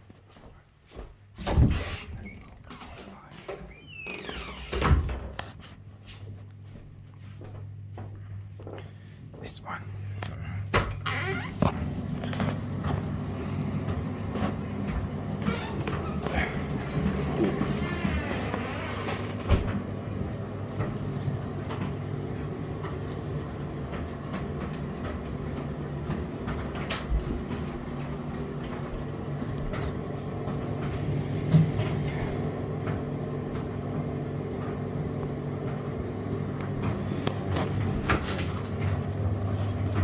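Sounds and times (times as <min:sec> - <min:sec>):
tumble dryer humming: 0:09.3 - 0:40.0.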